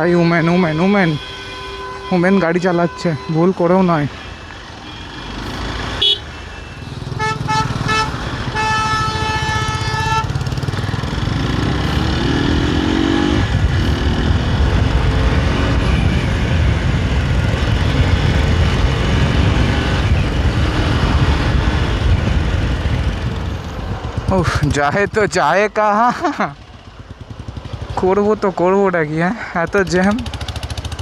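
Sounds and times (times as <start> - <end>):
vehicle horn honking: 0.0 - 10.7
motorcycle engine rumble: 3.2 - 31.0.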